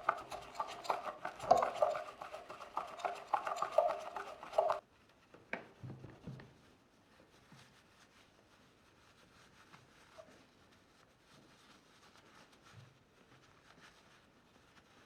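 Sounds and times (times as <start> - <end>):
scrubbing and clattering of machine parts: 0.0 - 4.8.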